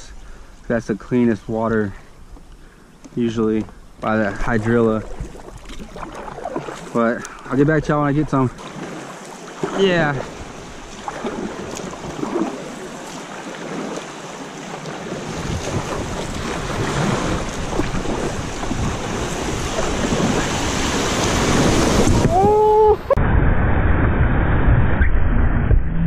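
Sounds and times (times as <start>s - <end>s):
muffled water rush: 0.0s - 25.9s
rushing river water: 3.2s - 22.9s
wind buffeting microphone: 15.1s - 23.6s.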